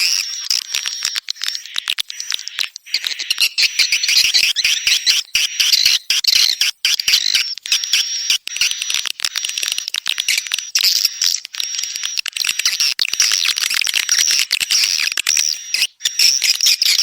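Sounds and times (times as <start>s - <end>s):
swiftlet calls twittering: 0.0s - 13.5s.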